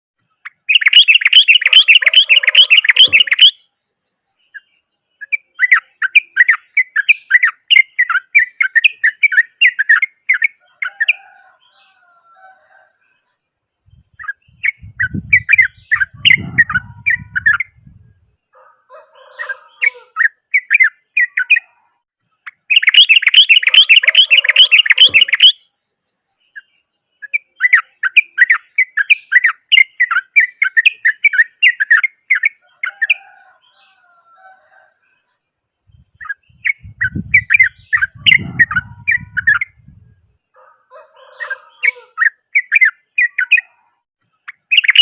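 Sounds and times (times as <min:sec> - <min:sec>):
bird chattering song: 0:00.2 - 0:12.2, 0:13.1 - 0:34.1, 0:35.0 - 0:45.0.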